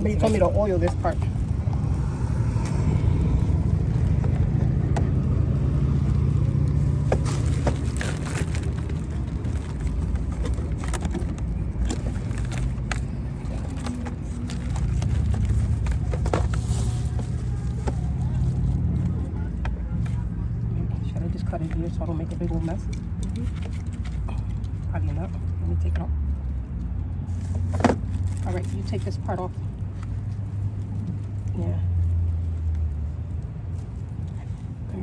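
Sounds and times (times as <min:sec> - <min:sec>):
light clicks and knocks of handling: 0:21.4 - 0:34.9.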